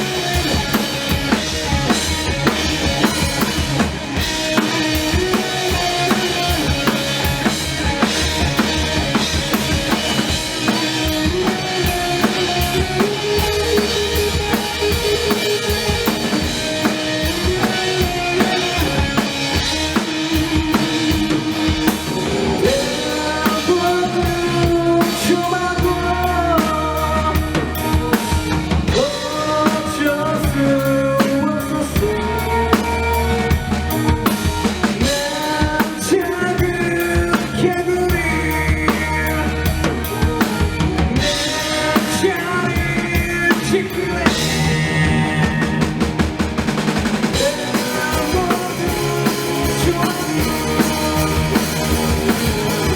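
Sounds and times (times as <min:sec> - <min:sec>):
bass drum and snare beat: 0:00.0 - 0:36.0, 0:36.6 - 0:52.9
live rock band: 0:00.0 - 0:52.9.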